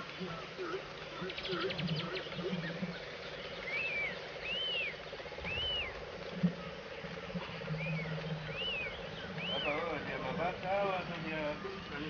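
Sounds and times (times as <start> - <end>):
insect buzz: 0.0 - 12.0
bird whistling: 3.6 - 6.0, 7.7 - 10.0.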